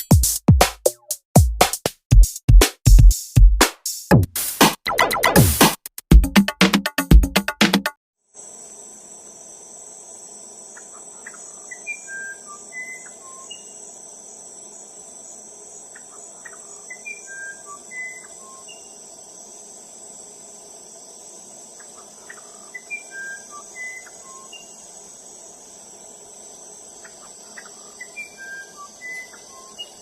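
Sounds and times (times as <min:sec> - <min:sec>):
high-pitched insect hum: 0:08.3 - 0:30.0
wren whistled song: 0:10.8 - 0:13.9, 0:15.9 - 0:19.1, 0:21.8 - 0:24.9, 0:27.0 - 0:30.0.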